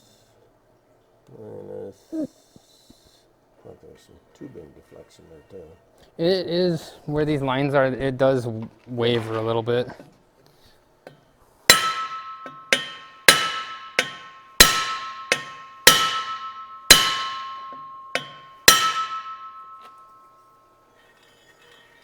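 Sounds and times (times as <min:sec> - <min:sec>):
hammer tapping steel tube: 0:11.1 - 0:20.4
metal tube ringing: 0:11.7 - 0:22.0.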